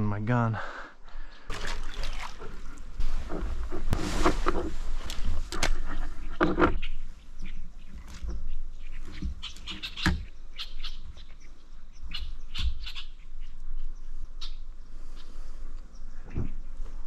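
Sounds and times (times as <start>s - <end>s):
small birds chirping: 5.7s - 17.0s.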